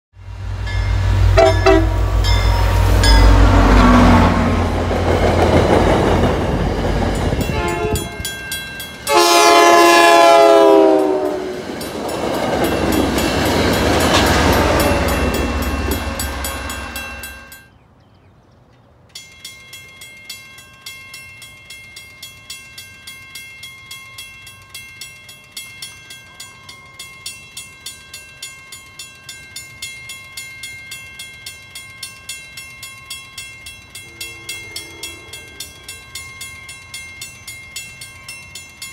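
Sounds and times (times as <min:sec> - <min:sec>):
train horn chord: 0:00.2 - 0:04.7, 0:07.4 - 0:08.3, 0:09.1 - 0:11.6, 0:33.9 - 0:36.1
train coaches rolling past: 0:00.2 - 0:18.0, 0:18.6 - 0:38.9
crossing bell ringing: 0:00.3 - 0:17.8, 0:19.0 - 0:38.9.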